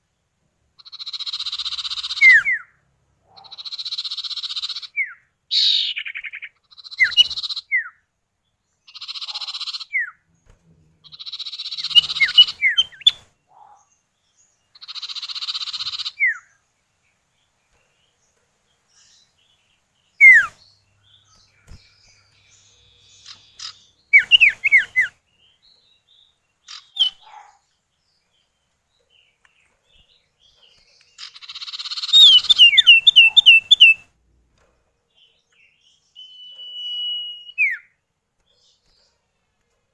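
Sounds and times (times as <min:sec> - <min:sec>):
buzzy rattling bird calls: 0:00.8 - 0:02.7, 0:03.3 - 0:07.8, 0:08.9 - 0:13.9, 0:14.7 - 0:16.6, 0:20.2 - 0:25.2, 0:26.6 - 0:27.7, 0:29.1 - 0:34.9
short falling bird whistles: 0:36.2 - 0:37.9.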